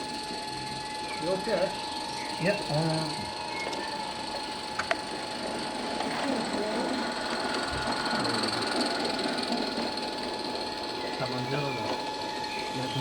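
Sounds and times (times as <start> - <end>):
model steam locomotive running: 0.0 - 13.0
faint voices: 6.0 - 9.9.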